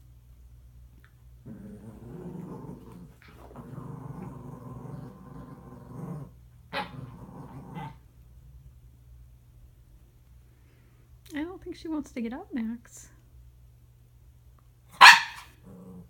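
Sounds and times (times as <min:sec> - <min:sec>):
dog growling: 0:01.4 - 0:08.0, 0:15.5 - 0:16.0
dog barking: 0:15.0 - 0:15.6.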